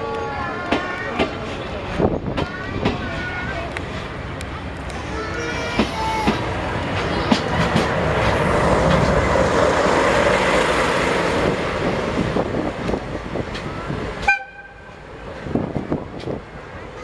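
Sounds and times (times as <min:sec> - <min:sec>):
train rolling past: 0:00.0 - 0:17.0.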